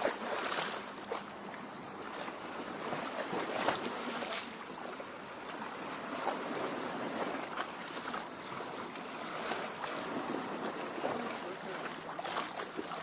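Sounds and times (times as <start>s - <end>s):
lake waves lapping at shore: 0.0s - 13.0s.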